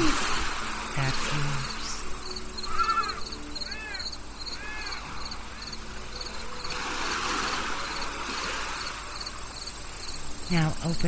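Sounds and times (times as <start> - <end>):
crickets trilling and chirping: 0.0 - 11.0
short arched animal calls: 2.6 - 5.1.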